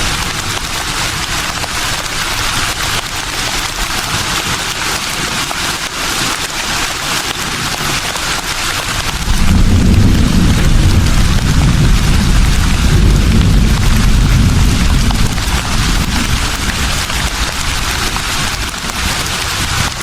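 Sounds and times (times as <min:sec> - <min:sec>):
breeze rustling leaves: 0:00.0 - 0:20.0
deep rumble: 0:09.0 - 0:18.6.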